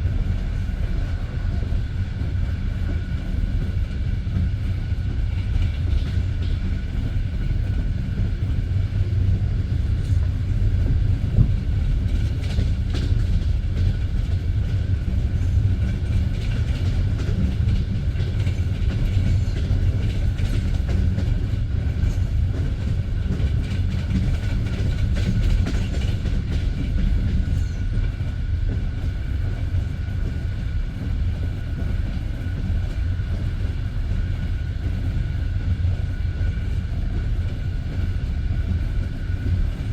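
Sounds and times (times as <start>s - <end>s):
train rumble: 0.0s - 39.9s.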